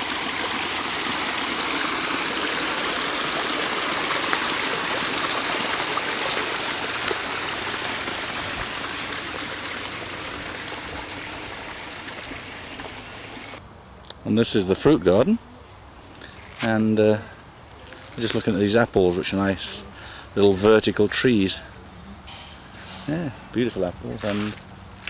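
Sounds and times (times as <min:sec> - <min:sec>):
stream trickling over stones: 0:00.0 - 0:13.6.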